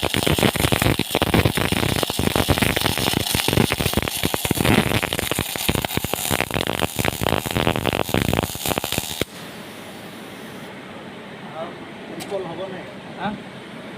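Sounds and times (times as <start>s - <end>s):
electric arc welding crackle: 0.0s - 9.5s.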